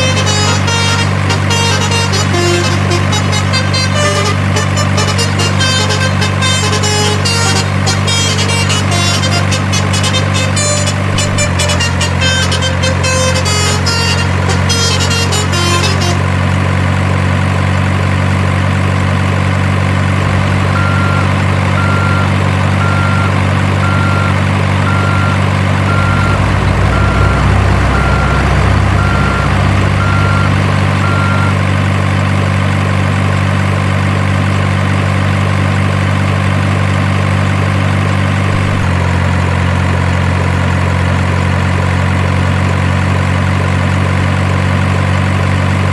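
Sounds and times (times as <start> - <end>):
truck diesel engine idling: 0.0 - 45.9
reversing alarm beeps: 20.8 - 31.6.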